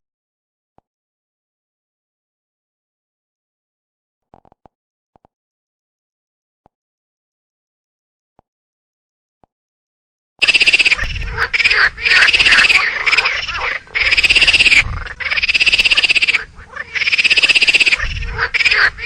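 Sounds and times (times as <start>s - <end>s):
squirrel chattering: 10.4s - 19.0s.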